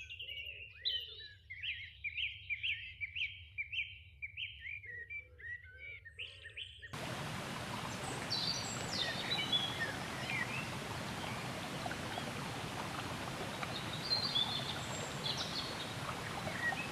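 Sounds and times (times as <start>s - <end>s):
small birds chirping: 7.0s - 16.9s
steady rushing hiss: 7.0s - 16.9s.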